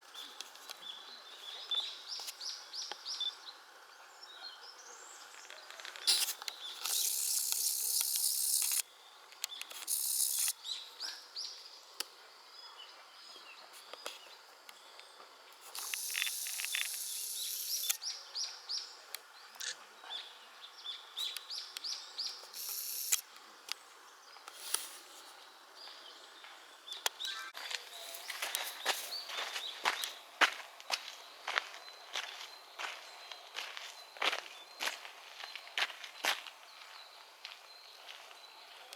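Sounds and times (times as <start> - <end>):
birds chirping: 0.2 - 38.9
harsh high hissing: 6.1 - 8.8, 15.7 - 18.0.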